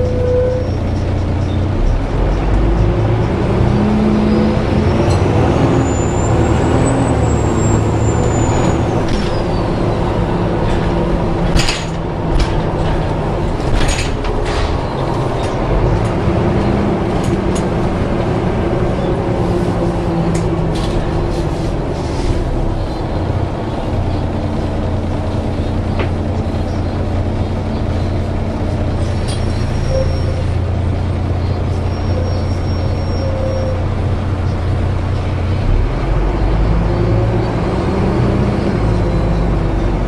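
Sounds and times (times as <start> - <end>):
bus engine drone: 0.0 - 40.0
high-pitched squeal: 3.8 - 10.3, 28.9 - 30.8.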